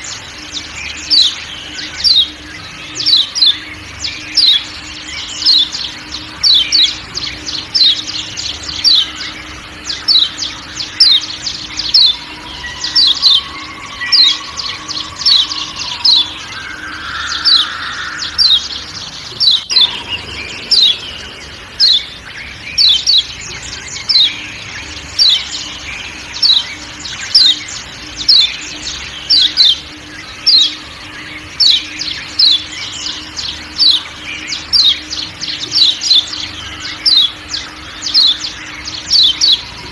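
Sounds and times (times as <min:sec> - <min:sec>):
bird giving sharp high calls: 0:00.0 - 0:23.3
faint forest background: 0:00.0 - 0:39.9.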